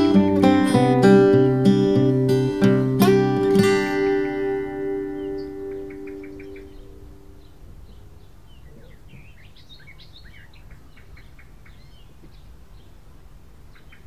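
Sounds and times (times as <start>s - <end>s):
guitar music: 0.0s - 7.5s
birds chirping: 0.0s - 14.0s.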